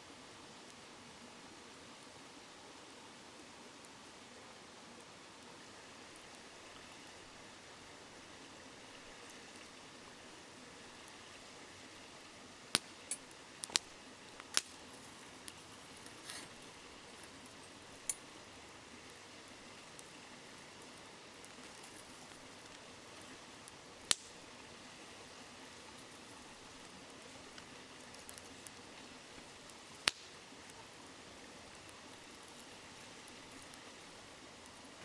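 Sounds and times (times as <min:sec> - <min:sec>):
campfire crackling: 0:00.1 - 0:35.0
river babbling: 0:00.1 - 0:35.0
fire popping: 0:03.8 - 0:35.0.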